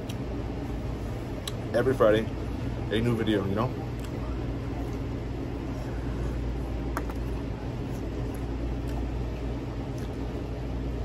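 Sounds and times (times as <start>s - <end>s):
man chewing pizza: 0.0s - 1.7s, 3.8s - 11.0s
low room hum: 0.0s - 11.0s.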